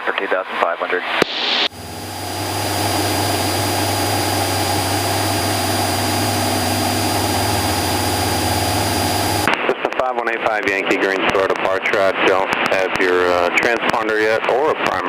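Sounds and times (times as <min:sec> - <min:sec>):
airplane engine drone in cabin: 0:01.6 - 0:09.5.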